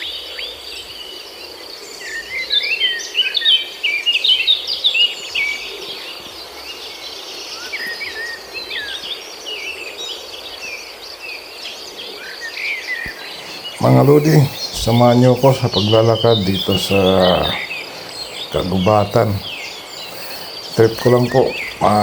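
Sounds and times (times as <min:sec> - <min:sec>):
birds chirping: 0:13.1 - 0:22.0
high-pitched insect drone: 0:13.1 - 0:22.0.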